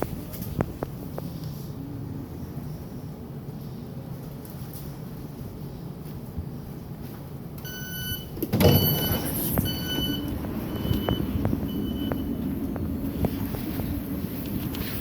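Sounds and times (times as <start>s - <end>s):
train rumbling: 0.0s - 15.0s
train door warning beeps: 7.6s - 12.5s.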